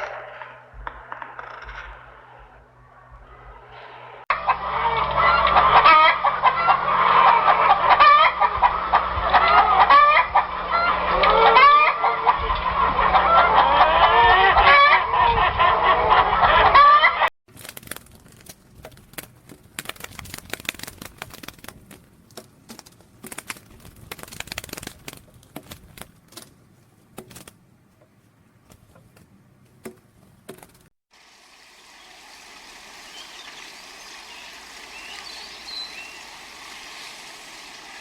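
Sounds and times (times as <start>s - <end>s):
poultry clucking and calling: 4.3s - 17.3s.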